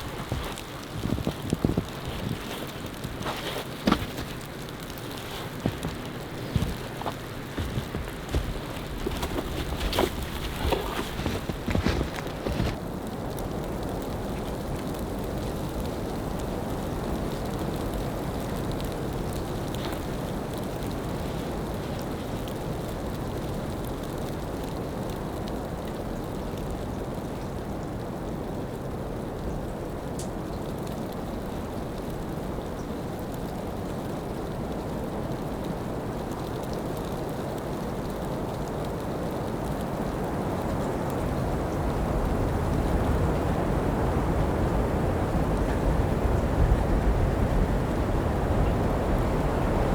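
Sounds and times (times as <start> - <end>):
snowstorm wind rushing: 0.0 - 13.4, 41.2 - 49.9.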